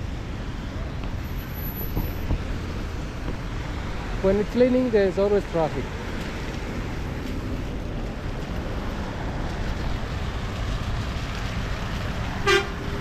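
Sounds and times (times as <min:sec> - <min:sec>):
traffic on wet road: 0:00.0 - 0:13.0.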